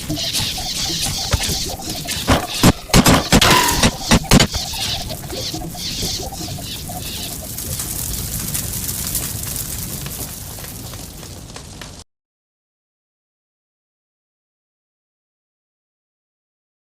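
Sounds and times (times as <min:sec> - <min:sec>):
arrows hitting: 0:00.0 - 0:04.9.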